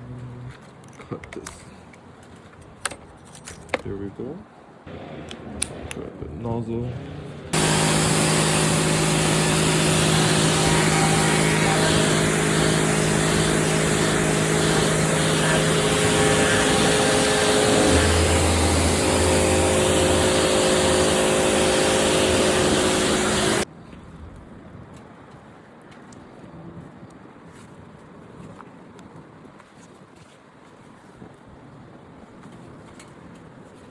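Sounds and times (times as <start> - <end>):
motor hum: 6.9 - 23.6
pressure washer spray hissing: 7.6 - 23.6.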